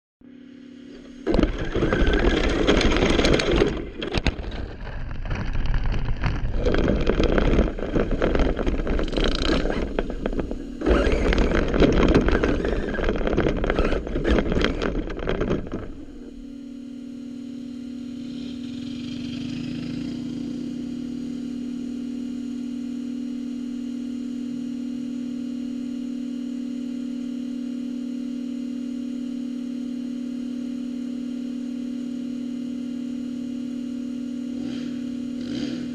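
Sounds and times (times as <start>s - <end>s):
engine idling: 0.3s - 16.8s, 17.6s - 22.0s
vehicle motors rushing: 6.3s - 16.4s, 18.1s - 21.8s, 34.5s - 35.9s.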